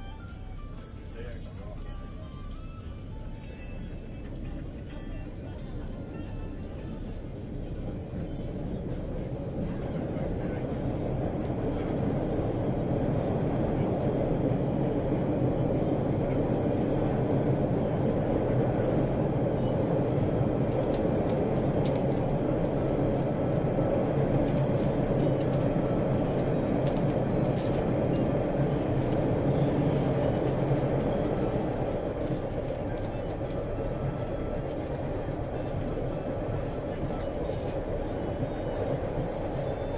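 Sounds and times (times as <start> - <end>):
subway train rumbling: 0.0 - 39.9.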